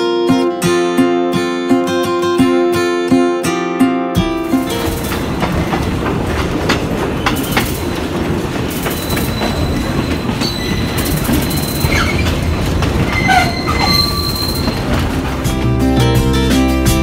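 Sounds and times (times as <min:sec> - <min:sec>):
sharp clicks over rails: 0:04.2 - 0:17.0
train wheels rumbling: 0:04.3 - 0:17.0
thin wheel squeal: 0:08.7 - 0:15.0.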